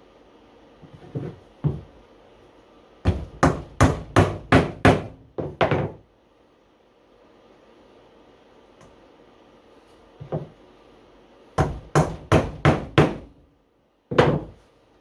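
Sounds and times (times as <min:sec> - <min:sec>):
hammer striking nails into wood: 0:03.1 - 0:06.0, 0:11.6 - 0:13.3.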